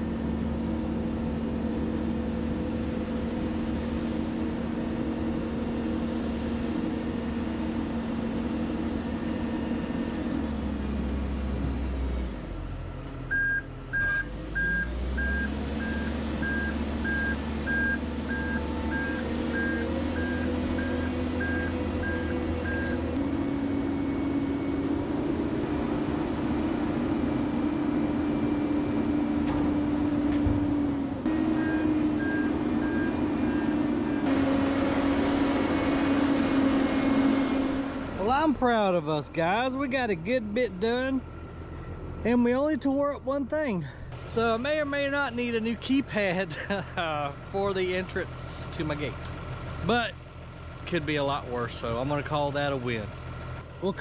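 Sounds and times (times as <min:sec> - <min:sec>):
diesel engine running: 0:00.0 - 0:54.0
reversing alarm beeping: 0:13.3 - 0:25.0, 0:31.4 - 0:34.4.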